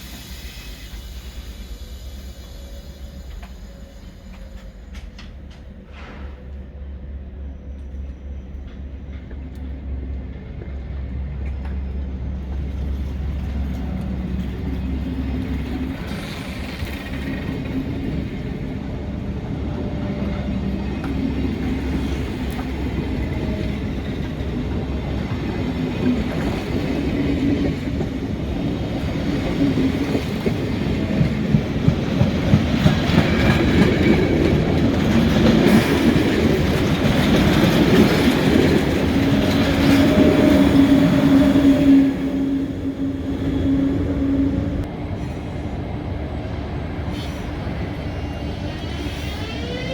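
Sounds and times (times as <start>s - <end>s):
train rolling: 0.0s - 49.9s
wheels clacking over rail joints: 20.9s - 41.4s.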